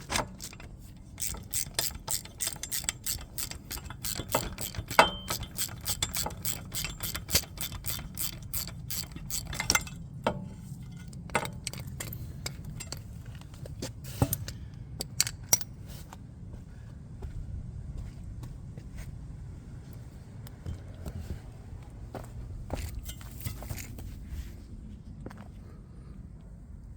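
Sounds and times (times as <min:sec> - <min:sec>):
hand ratchet clicking: 0:00.0 - 0:10.0, 0:11.3 - 0:13.0.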